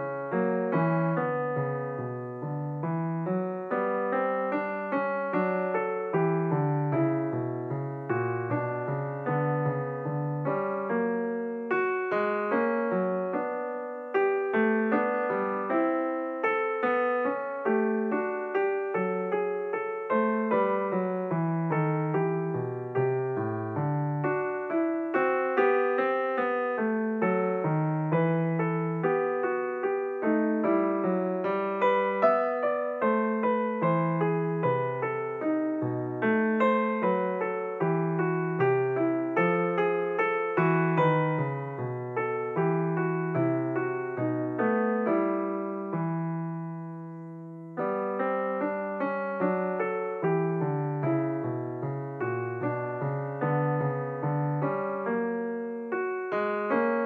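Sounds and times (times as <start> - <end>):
solo piano playing: 0.0 - 57.0.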